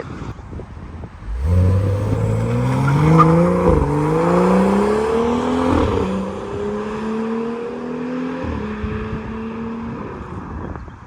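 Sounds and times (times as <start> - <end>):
car engine accelerating: 1.1 - 10.0.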